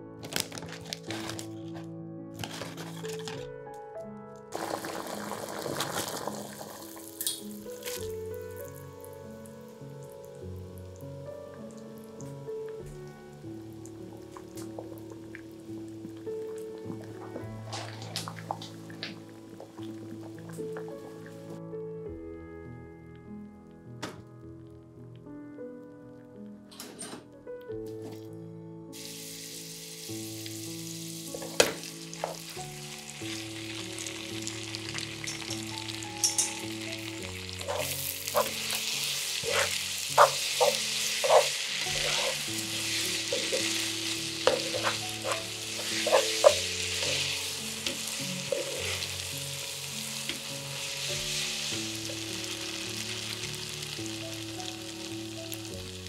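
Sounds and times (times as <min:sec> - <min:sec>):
soft background music: 0:00.0 - 0:56.0
noodles sizzling in hot oil: 0:04.5 - 0:21.3, 0:29.0 - 0:56.0.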